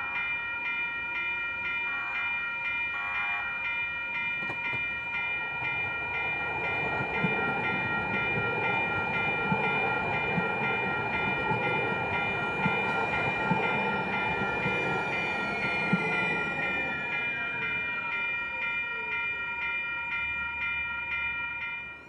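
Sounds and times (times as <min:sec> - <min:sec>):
crossing warning bell ringing: 0:00.0 - 0:22.0
train wheels clicking over rail joints: 0:04.4 - 0:05.8.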